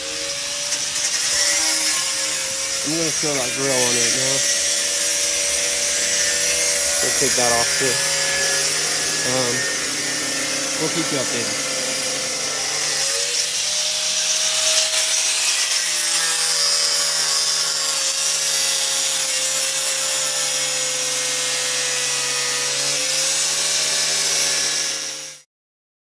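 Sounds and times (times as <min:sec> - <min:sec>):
angle grinder cutting metal: 0:00.0 - 0:25.5.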